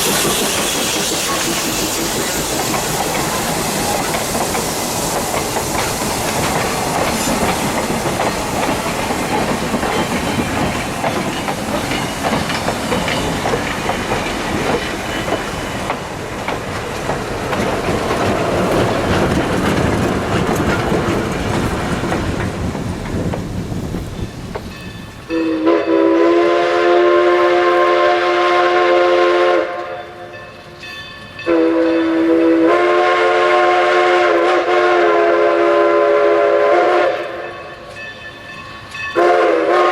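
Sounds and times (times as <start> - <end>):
chime steam whistle blasts: 0.0 - 4.1, 24.9 - 39.9
rail clatter: 0.0 - 25.4
steam locomotive hissing: 0.0 - 39.9.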